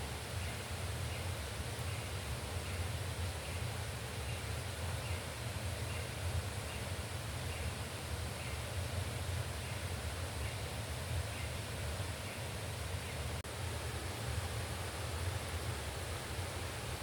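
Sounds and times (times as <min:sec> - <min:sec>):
river rushing: 0:12.6 - 0:17.0.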